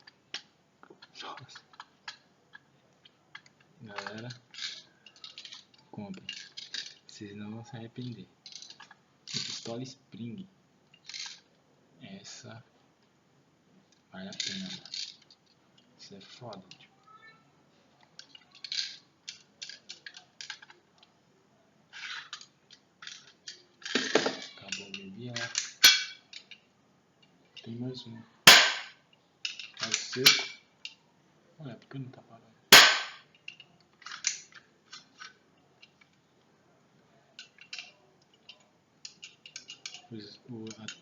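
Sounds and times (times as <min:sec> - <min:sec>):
metal clicks and sliding: 0:03.3 - 0:07.2, 0:10.9 - 0:11.6, 0:18.0 - 0:21.1, 0:21.9 - 0:26.6, 0:29.4 - 0:31.0, 0:32.8 - 0:36.2, 0:37.4 - 0:41.0
pistol shot crack: 0:28.5 - 0:29.0, 0:32.8 - 0:33.2.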